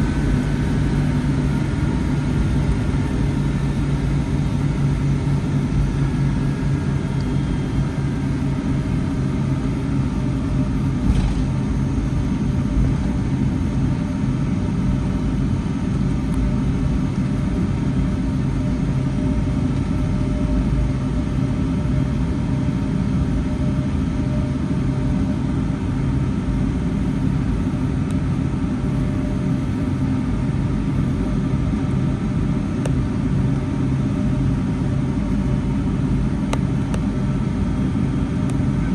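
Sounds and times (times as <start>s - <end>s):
low hum: 0.0s - 17.7s
jet engine cabin drone: 0.0s - 38.9s.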